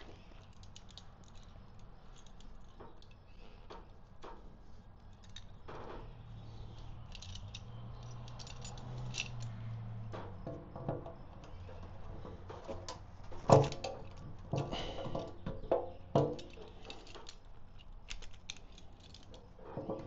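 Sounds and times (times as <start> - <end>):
metallic tool clicks and clinks: 6.7 - 9.6, 16.2 - 19.5.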